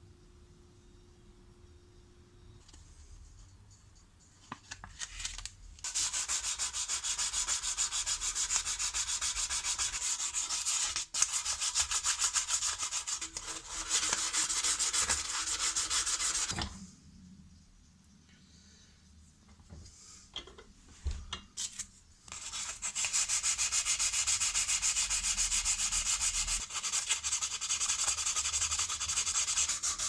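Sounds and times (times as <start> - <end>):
hand sanding metal: 5.9 - 16.5, 22.3 - 30.0.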